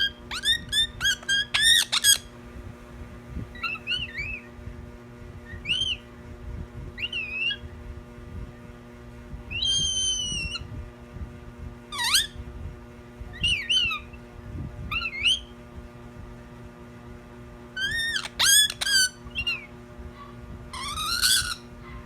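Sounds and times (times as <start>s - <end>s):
steady low hum: 0.0s - 22.0s
bird whistled chirps: 3.6s - 4.5s, 5.5s - 6.1s, 7.0s - 7.6s, 9.5s - 10.7s, 13.4s - 14.1s, 14.9s - 15.5s, 17.8s - 19.7s.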